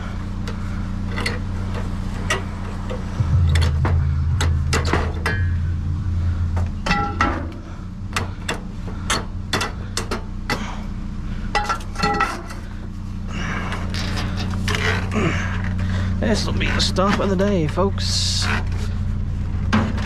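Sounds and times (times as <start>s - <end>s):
steady low hum: 0.0s - 20.0s
metal knocks and clanks: 1.2s - 10.6s.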